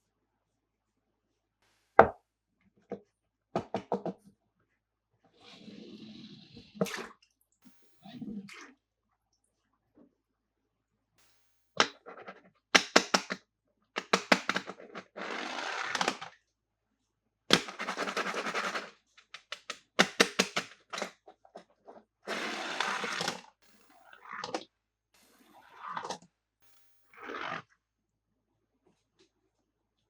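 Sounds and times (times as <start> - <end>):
plastic clicks and cracks: 12.8 - 13.4, 14.0 - 15.2, 17.5 - 21.2.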